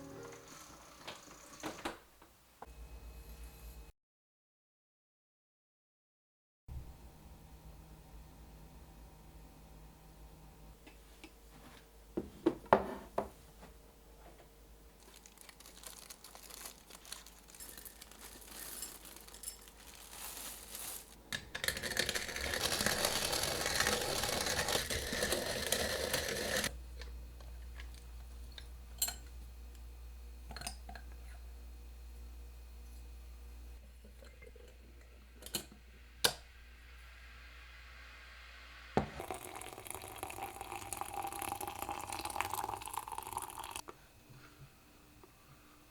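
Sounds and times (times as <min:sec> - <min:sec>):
rustling: 0:15.0 - 0:21.2.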